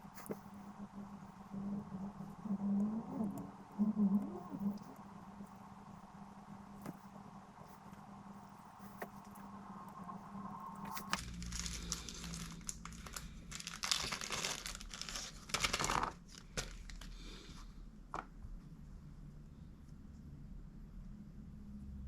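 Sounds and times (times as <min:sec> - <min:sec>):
crinkling and rustling: 0:00.0 - 0:05.7, 0:10.8 - 0:18.6.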